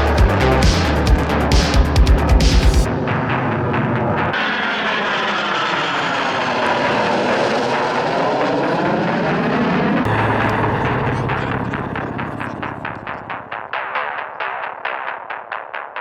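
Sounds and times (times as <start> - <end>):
aircraft flying past: 3.0 - 13.6
low steady drone: 7.2 - 13.6.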